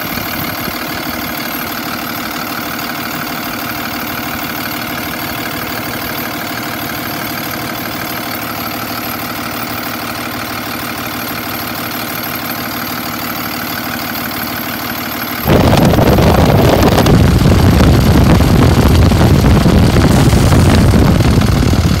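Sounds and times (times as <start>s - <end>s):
truck engine humming and whining: 0.0s - 22.0s
loud rushing fan: 15.4s - 22.0s.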